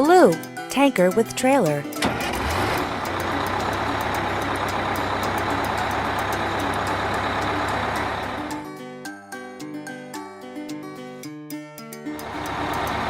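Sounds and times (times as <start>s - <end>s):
truck engine running: 1.1s - 8.7s, 12.2s - 13.0s.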